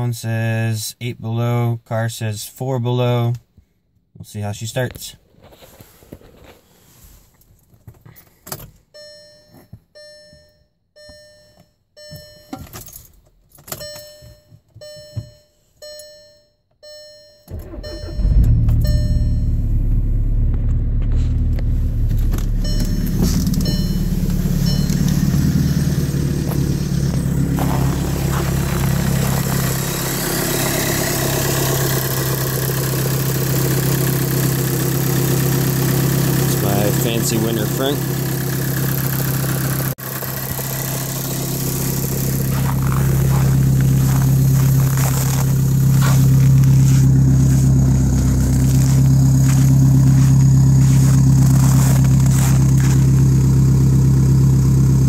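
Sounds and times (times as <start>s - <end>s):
car warning chime: 8.9s - 13.0s, 13.6s - 20.9s, 21.7s - 39.9s
diesel engine cranking and starting: 17.5s - 55.0s
diesel engine idling: 17.5s - 55.0s.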